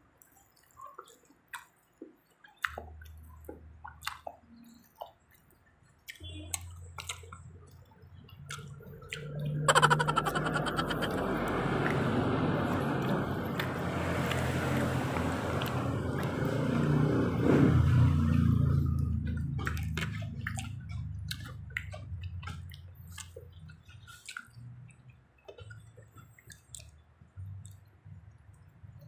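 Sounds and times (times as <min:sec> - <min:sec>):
vehicle engine passing: 0:08.8 - 0:22.6.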